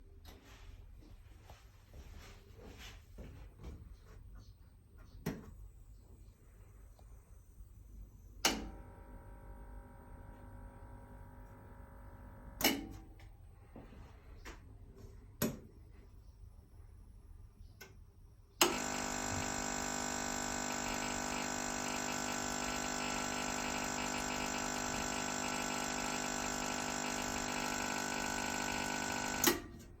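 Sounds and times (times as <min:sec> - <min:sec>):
steady mechanical hum: 0:00.0 - 0:30.0.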